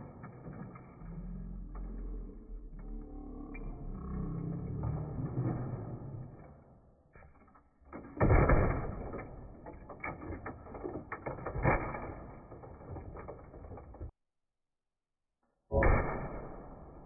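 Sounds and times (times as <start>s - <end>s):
small knocks and rattles: 7.1s - 14.2s.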